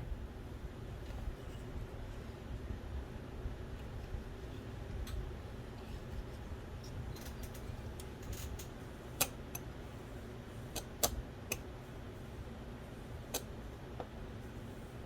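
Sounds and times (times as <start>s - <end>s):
steady low hum: 0.0s - 15.0s
small parts clicking and tapping: 6.8s - 9.7s.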